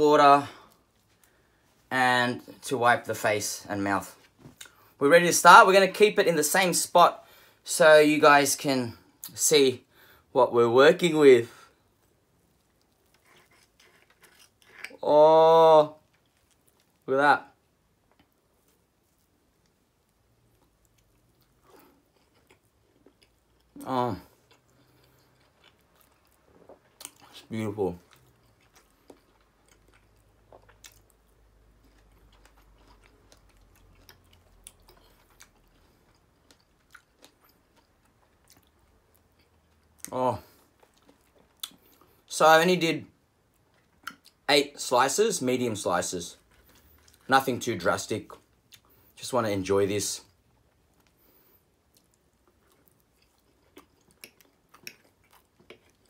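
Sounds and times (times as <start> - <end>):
faint chewing and mouth clicks: 4.2 - 5.0, 11.9 - 15.1, 15.9 - 42.3, 43.4 - 44.5, 46.4 - 47.3, 48.3 - 49.2, 50.2 - 56.0.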